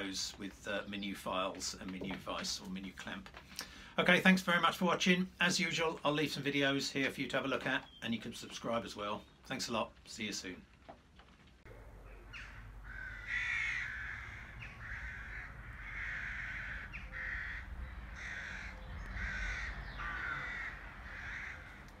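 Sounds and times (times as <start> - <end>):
bird harsh rasping calls: 12.0 - 22.0.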